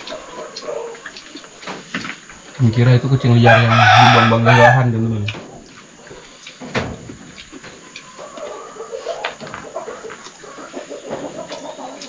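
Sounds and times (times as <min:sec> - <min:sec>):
birds calling: 0:07.3 - 0:12.0.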